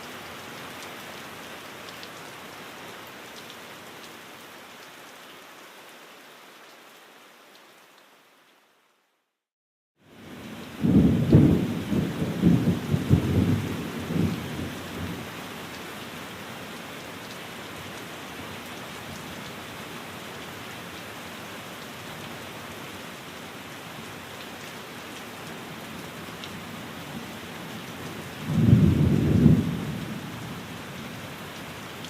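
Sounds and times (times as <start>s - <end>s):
steady rain: 0.0s - 9.4s, 10.0s - 32.0s
thunder rumbling: 10.8s - 15.2s, 28.4s - 30.2s.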